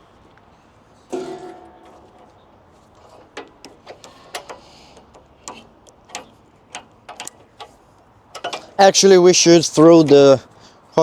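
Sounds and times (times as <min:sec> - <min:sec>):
metal parts clinking: 0:01.1 - 0:09.1.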